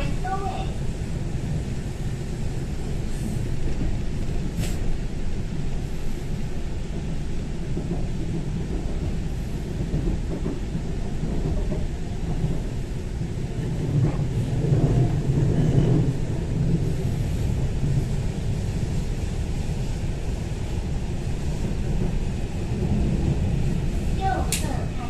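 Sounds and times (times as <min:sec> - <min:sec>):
train wheels rumbling on track: 0:00.0 - 0:25.0
faint clicks: 0:24.5 - 0:24.7.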